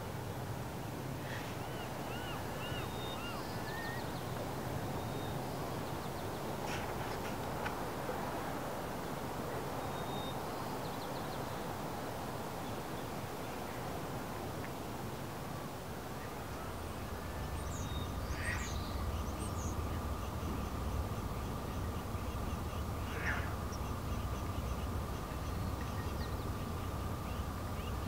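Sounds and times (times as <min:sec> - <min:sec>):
shoreline background hiss: 0:00.0 - 0:28.0
birds calling: 0:01.2 - 0:07.8, 0:16.7 - 0:28.0.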